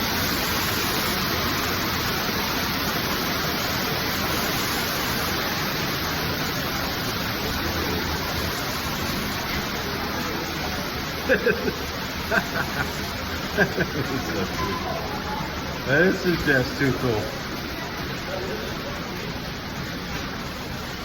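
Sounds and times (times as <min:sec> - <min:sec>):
waterfall rushing in a cave: 0:00.0 - 0:21.0.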